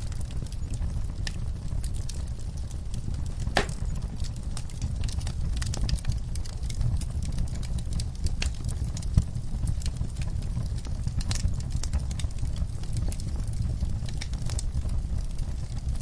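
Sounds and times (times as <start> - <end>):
low rumble of burning logs: 0.0 - 16.0
wood fire crackling: 0.0 - 16.0
sharp fire pop: 3.5 - 4.1.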